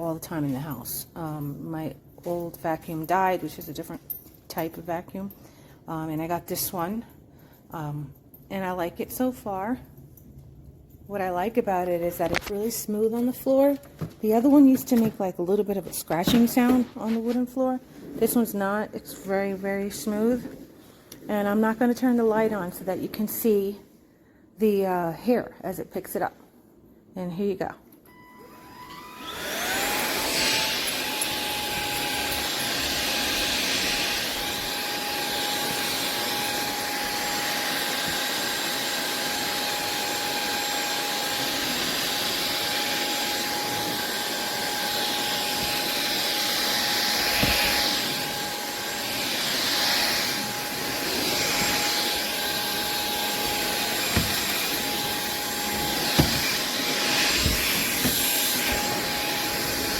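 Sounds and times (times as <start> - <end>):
stick vacuum motor whine: 28.1 - 59.9.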